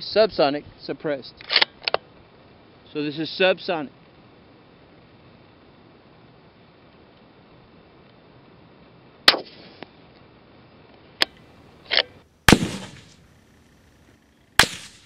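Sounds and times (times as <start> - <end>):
rifle shots with echo: 11.9 - 13.2, 14.6 - 15.0.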